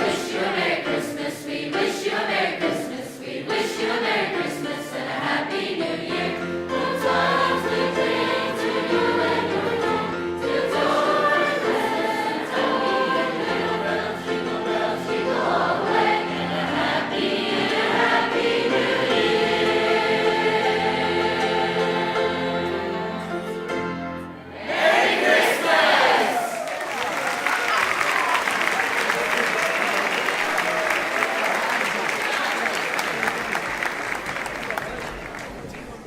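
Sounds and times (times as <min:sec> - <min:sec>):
choir singing: 0:00.0 - 0:26.6.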